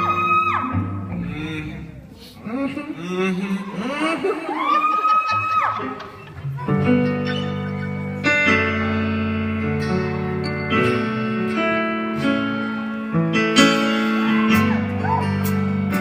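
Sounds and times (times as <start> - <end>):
keyboard playing sustained chords: 6.5 - 16.0.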